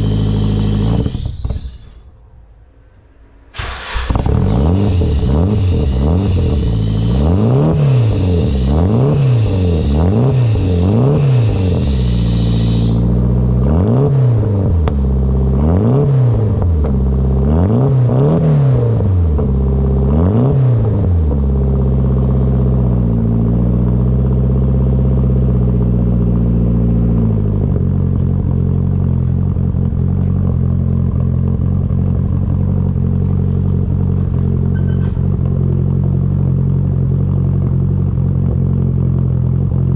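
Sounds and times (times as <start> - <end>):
car engine revving: 0.0 - 1.4, 3.5 - 28.5
car engine idling: 0.0 - 2.0, 3.5 - 13.6, 20.9 - 39.9.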